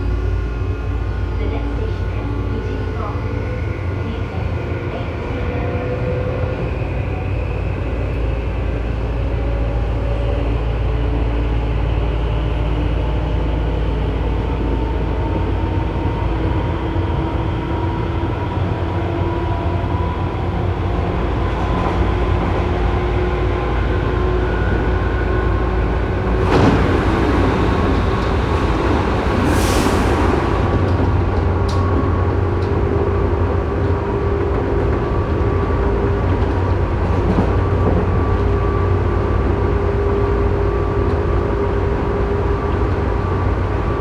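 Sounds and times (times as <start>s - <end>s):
train wheels rumbling: 0.0s - 44.0s
sudden loud rush of noise: 26.4s - 30.9s.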